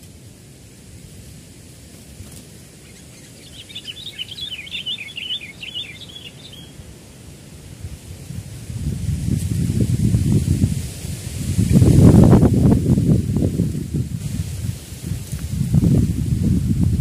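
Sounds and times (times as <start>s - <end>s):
low wind rumble: 0.0s - 17.0s
bulbul warbling song: 2.8s - 6.8s.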